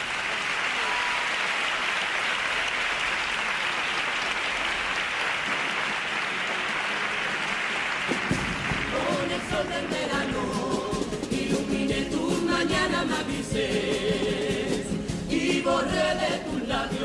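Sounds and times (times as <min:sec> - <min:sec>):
audience applauding: 0:00.0 - 0:10.3
group music playing: 0:08.0 - 0:17.0.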